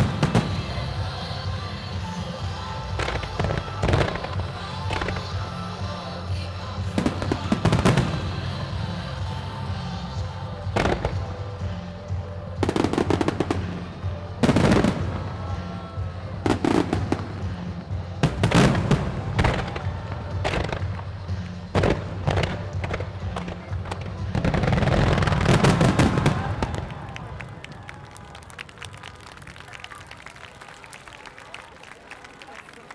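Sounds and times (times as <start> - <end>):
music from loudspeakers: 0.0 - 28.0
fireworks bursting: 0.0 - 30.0.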